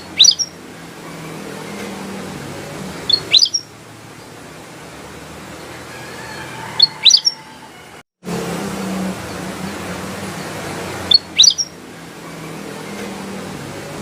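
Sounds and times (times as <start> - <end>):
bulbul chirping: 0.0 - 0.6, 3.0 - 3.7, 6.8 - 7.4, 11.0 - 11.8.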